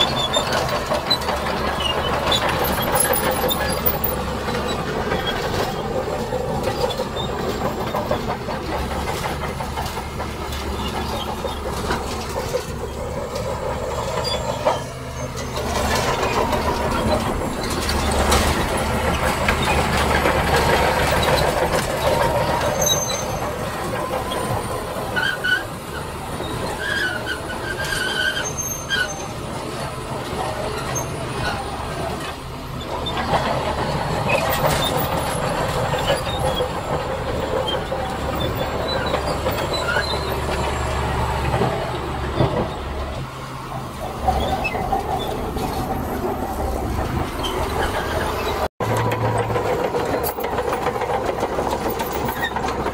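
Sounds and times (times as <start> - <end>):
diesel machinery engine clattering: 0.0 - 52.9
high metallic squeals: 10.5 - 29.5, 34.2 - 42.9.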